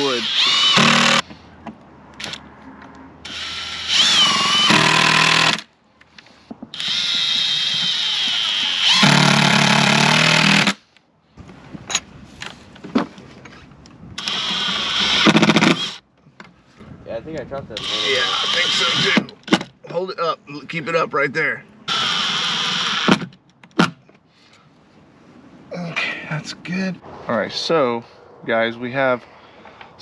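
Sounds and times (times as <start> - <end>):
power drill driving screws: 0.0 - 1.3, 3.2 - 5.7, 6.7 - 10.8, 14.2 - 16.0, 17.8 - 19.6, 21.9 - 23.3.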